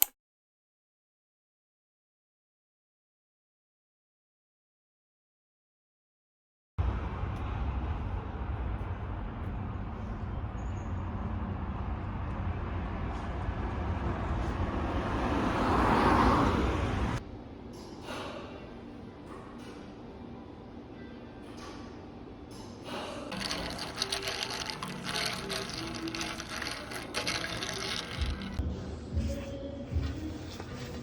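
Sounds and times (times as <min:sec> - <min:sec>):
road traffic rumble: 0:06.8 - 0:17.4
vehicle passing close: 0:11.7 - 0:17.2.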